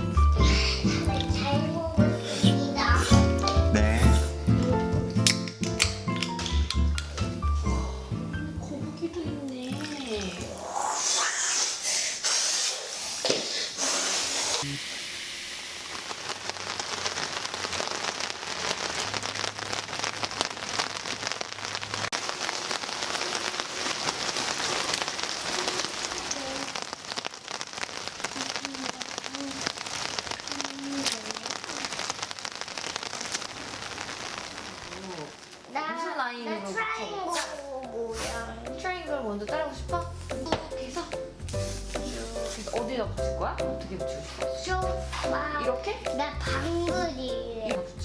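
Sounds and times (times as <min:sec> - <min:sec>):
steady rain falling: 0:13.2 - 0:48.0.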